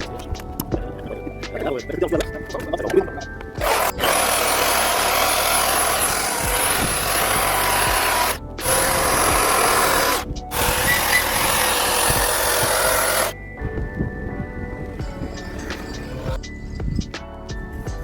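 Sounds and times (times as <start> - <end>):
power tool cutting wood: 3.6 - 13.4.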